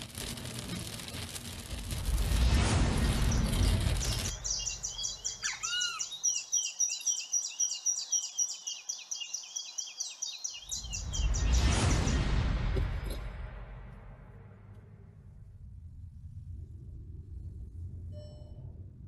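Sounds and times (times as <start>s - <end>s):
loud rushing rumbling noise: 0.0s - 5.4s, 10.7s - 18.1s
birds chirping: 3.2s - 12.2s.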